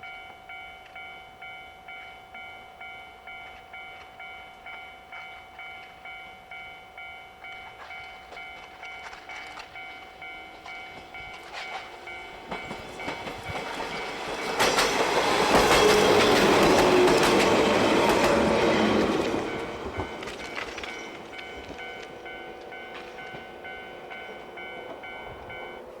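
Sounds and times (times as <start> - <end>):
pulsing ringing: 0.0 - 26.0
train wheels clattering over rail joints: 10.6 - 23.5.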